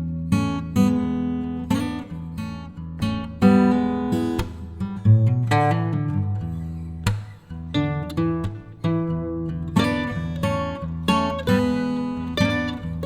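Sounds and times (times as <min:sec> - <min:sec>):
acoustic guitar picking: 0:00.0 - 0:13.0.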